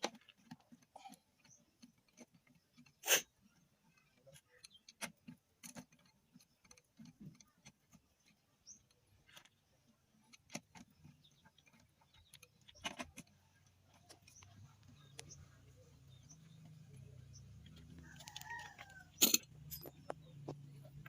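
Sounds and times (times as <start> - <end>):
metallic clicks and clinks of tools: 18.0 - 21.0.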